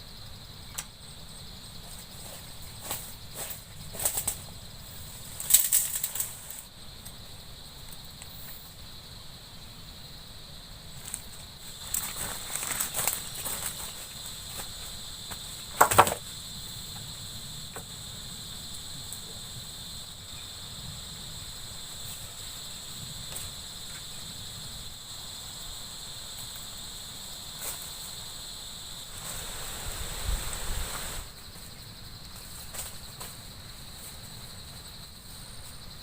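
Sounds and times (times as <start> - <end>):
high-pitched insect chorus: 0.0 - 36.0
rustling: 1.9 - 6.7, 11.0 - 16.2, 29.1 - 31.3.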